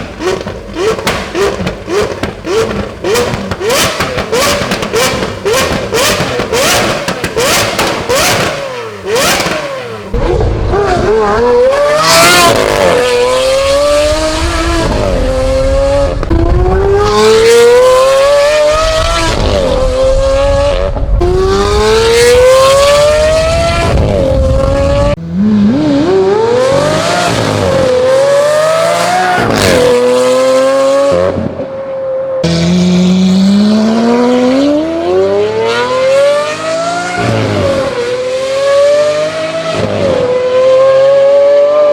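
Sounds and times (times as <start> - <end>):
high-pitched car engine accelerating: 0.2 - 31.4, 32.4 - 41.9
exhaust crackles and pops: 13.5 - 25.2.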